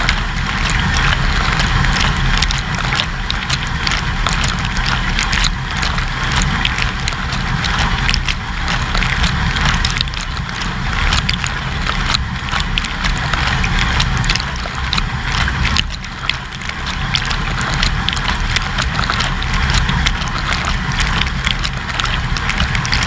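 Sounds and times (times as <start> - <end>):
drops ticking on camera: 0.0 - 23.0
water spraying and splashing: 0.0 - 23.0.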